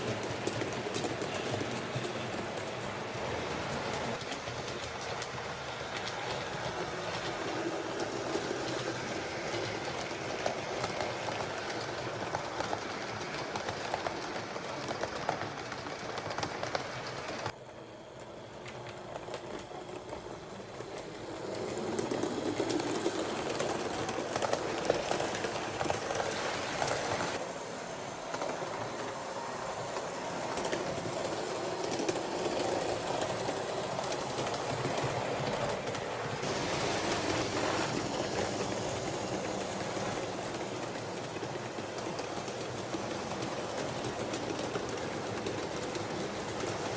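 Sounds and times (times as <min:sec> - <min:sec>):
wheels clicking over track: 0:00.0 - 0:17.6, 0:18.2 - 0:27.4, 0:29.8 - 0:46.9
model train motors whirring: 0:18.2 - 0:46.9.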